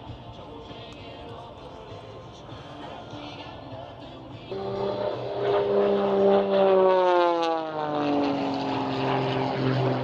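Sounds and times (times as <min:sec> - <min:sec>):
propeller plane flying past: 0:02.3 - 0:10.0.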